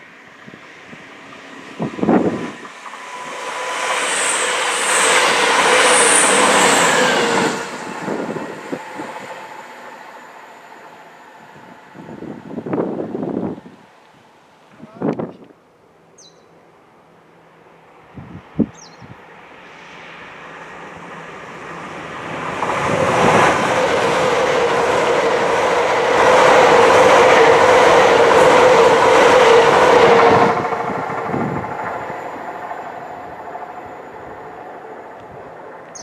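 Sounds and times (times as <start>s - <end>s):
train rushing past: 0.0s - 14.0s, 16.6s - 36.0s
wind buffeting microphone: 0.4s - 3.5s, 7.1s - 9.4s, 11.4s - 13.9s, 18.0s - 19.3s, 21.8s - 34.6s.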